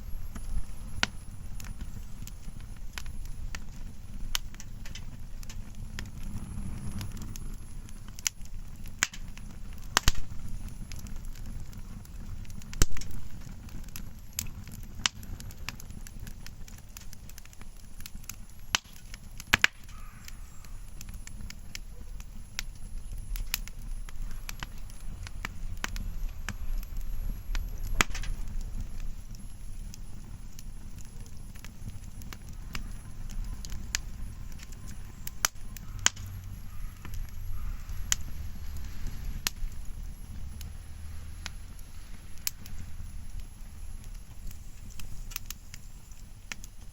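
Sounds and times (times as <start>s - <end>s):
bonfire crackling and popping: 0.0s - 46.9s
steady low rumble: 0.0s - 46.9s.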